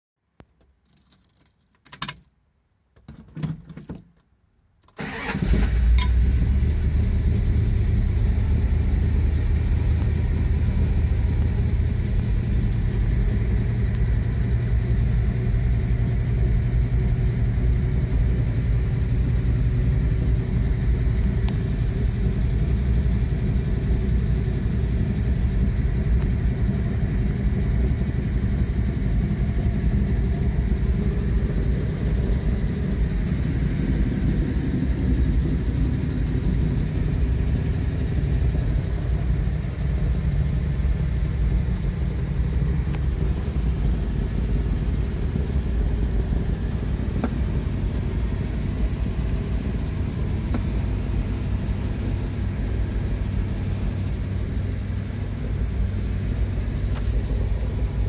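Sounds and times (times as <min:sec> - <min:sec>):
car engine starting and idling: 0:04.8 - 0:58.0.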